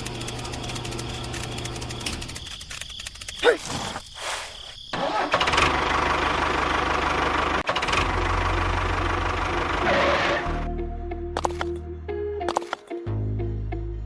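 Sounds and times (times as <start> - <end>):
tractor engine knocking: 5.1 - 9.8.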